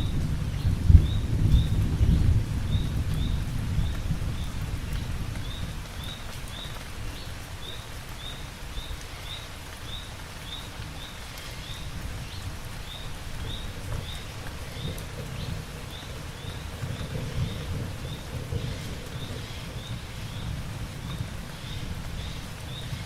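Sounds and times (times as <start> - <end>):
steady rain: 0.0 - 23.0.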